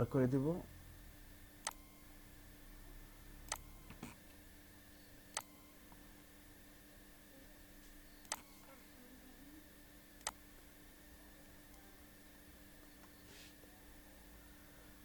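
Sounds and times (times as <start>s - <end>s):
faint steady hum: 0.0s - 15.0s
mouse button clicking: 3.5s - 4.2s, 8.2s - 8.5s.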